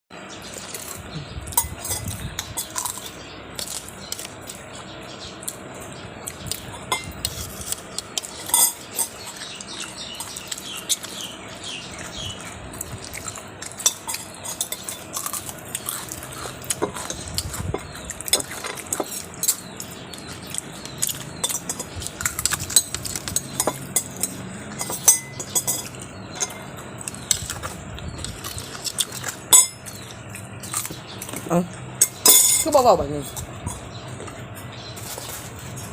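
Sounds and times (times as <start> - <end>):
utensils and dishes clinking: 0.2 - 35.9.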